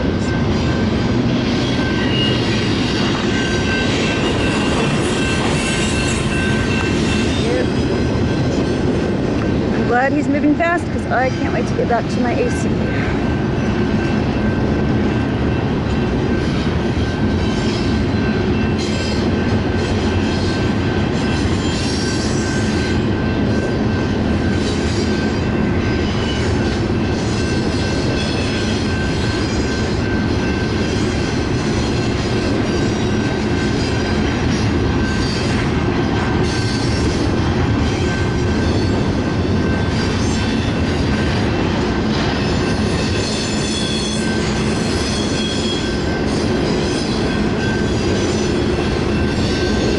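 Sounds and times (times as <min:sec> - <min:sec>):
train wheels rushing on rail: 0:00.0 - 0:49.9
high wheel squeal: 0:01.4 - 0:08.9, 0:16.3 - 0:41.4, 0:42.1 - 0:49.9.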